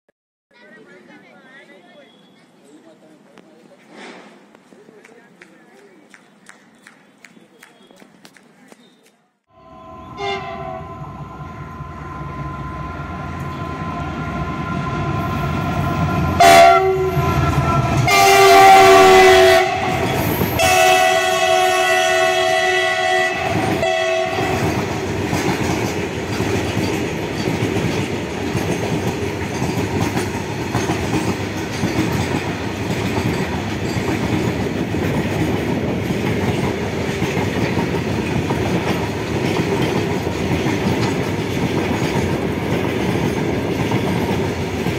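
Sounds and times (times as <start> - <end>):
locomotive horn blasts: 9.5 - 24.8
train wheels clattering: 23.5 - 44.9.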